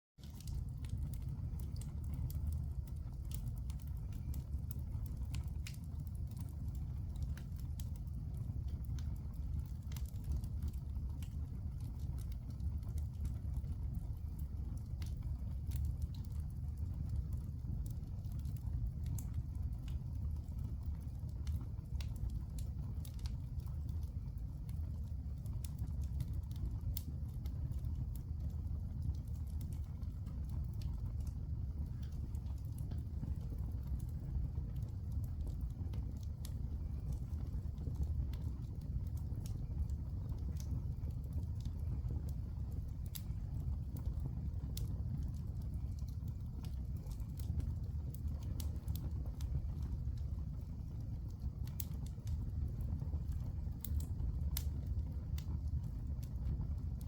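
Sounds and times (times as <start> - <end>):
fire crackling and popping: 0.2 - 57.0
low rumble of fire: 0.2 - 57.0.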